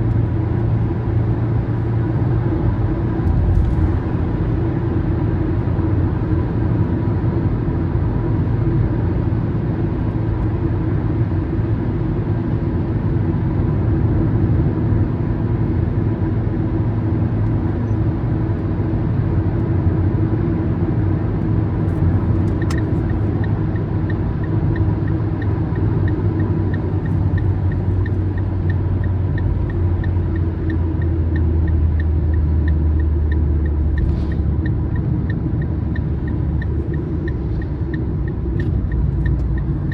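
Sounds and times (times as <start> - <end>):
car engine and tyre rumble: 0.0 - 39.9
turn signal ticking: 21.8 - 39.9.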